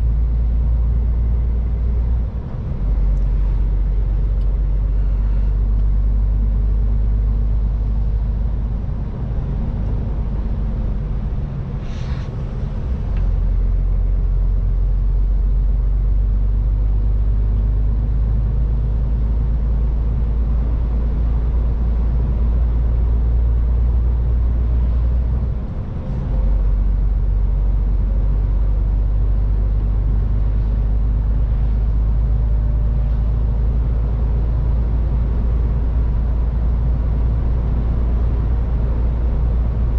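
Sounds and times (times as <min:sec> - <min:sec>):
road noise: 0:00.0 - 0:39.9
truck diesel engine droning: 0:00.0 - 0:39.9
short hiss: 0:11.8 - 0:12.4.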